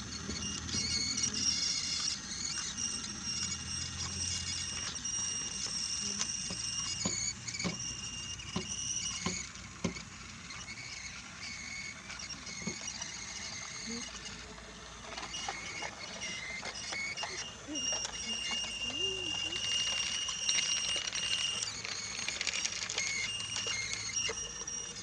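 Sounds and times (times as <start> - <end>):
toy train motor whining: 0.0 - 25.0.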